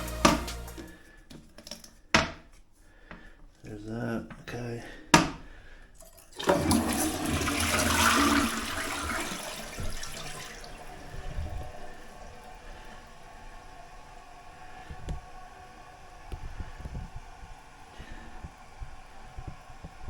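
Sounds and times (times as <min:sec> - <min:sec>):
running water hiss: 0:06.0 - 0:20.0
toilet flushing water rush: 0:06.0 - 0:20.0.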